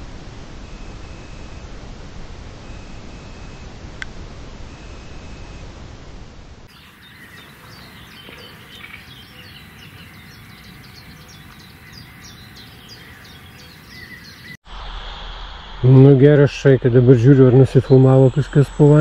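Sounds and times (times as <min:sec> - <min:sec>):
light outdoor hiss: 0:00.0 - 0:19.0
muffled rushing hiss: 0:00.0 - 0:19.0
birds chirping and singing: 0:06.7 - 0:14.6.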